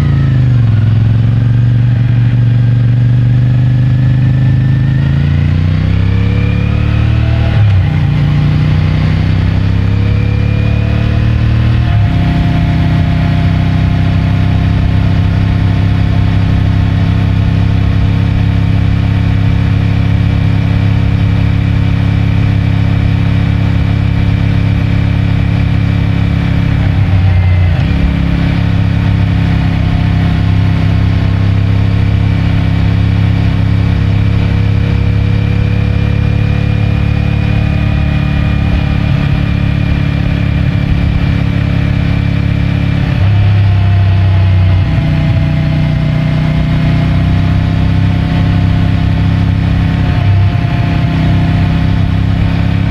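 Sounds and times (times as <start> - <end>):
motorcycle engine cruising: 0.0 - 52.9.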